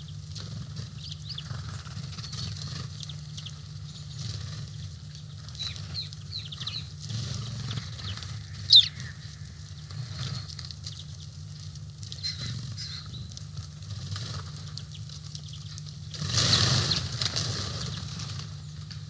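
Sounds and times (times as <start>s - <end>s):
small birds chirping: 0.0s - 19.0s
steady low hum: 0.0s - 19.0s
loud bird call sliding downward: 7.6s - 9.5s.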